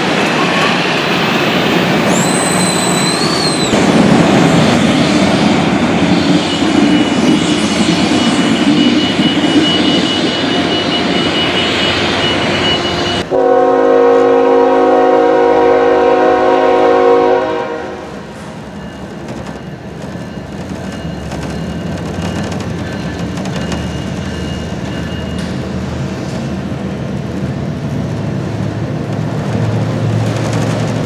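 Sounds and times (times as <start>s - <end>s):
locomotive air horn: 9.8s - 18.3s.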